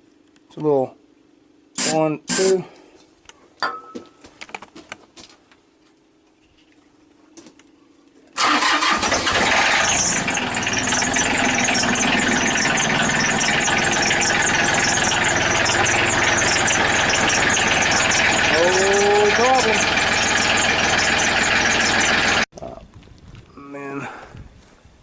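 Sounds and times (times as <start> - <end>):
diesel tractor engine running: 8.4 - 22.5.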